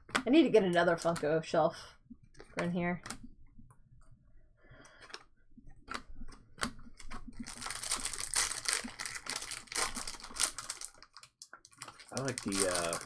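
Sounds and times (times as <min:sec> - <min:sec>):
cards clicking and tapping: 0:04.9 - 0:07.3
foil wrapper crinkling: 0:07.0 - 0:13.0.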